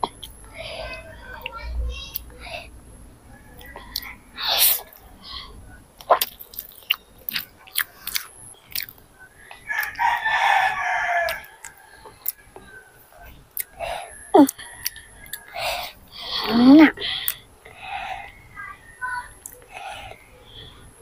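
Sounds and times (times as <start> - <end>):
chewing and lip smacking: 6.0 - 10.0, 11.2 - 17.4
rooster crowing: 9.4 - 16.5.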